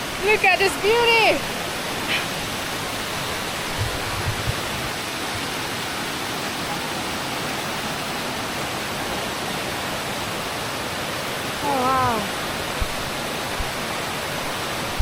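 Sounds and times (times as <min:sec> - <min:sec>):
waterfall roaring: 0:00.0 - 0:15.0
soft low thuds: 0:03.6 - 0:04.9.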